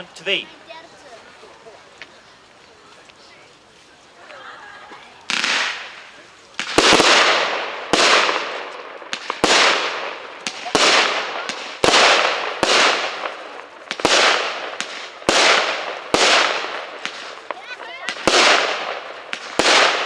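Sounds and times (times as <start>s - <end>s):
firework bangs with hiss: 5.2s - 20.0s
small firework pops: 5.2s - 20.0s.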